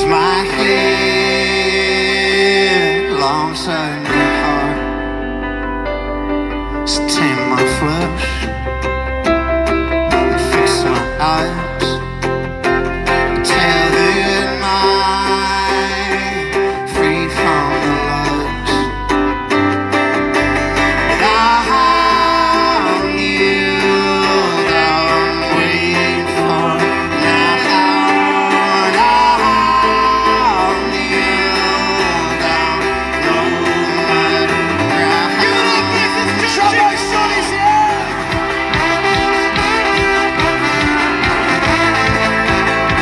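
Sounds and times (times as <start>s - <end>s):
voices singing held notes: 0.0s - 5.2s, 20.3s - 43.0s
strummed acoustic guitar: 0.0s - 43.0s
steady bass pulse: 16.9s - 43.0s.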